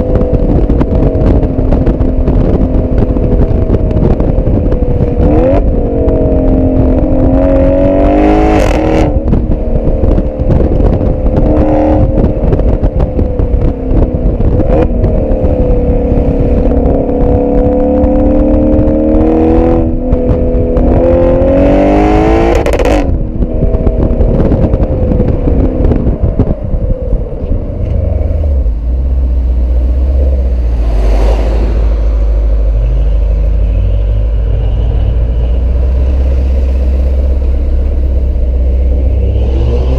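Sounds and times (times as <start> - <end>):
car exhaust revving: 0.0 - 39.9
wind rumble on microphone: 0.0 - 39.9.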